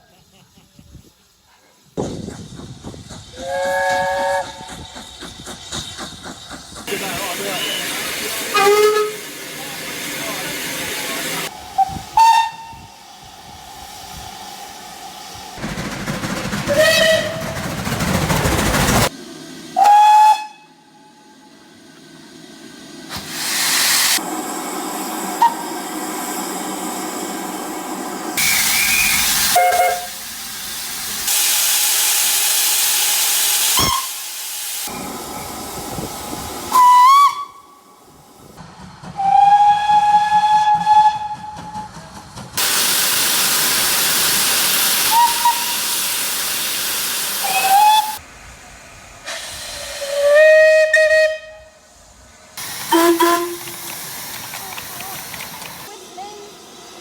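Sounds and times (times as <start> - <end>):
steam hissing: 0.0 - 57.0
steam locomotive whistle blasts: 3.3 - 4.8, 7.0 - 9.5, 11.8 - 12.9, 16.7 - 17.5, 19.8 - 21.2, 25.4 - 25.8, 28.4 - 30.3, 33.6 - 34.3, 36.7 - 38.0, 39.2 - 41.9, 44.9 - 46.1, 47.4 - 48.2, 49.3 - 51.9, 52.6 - 53.9.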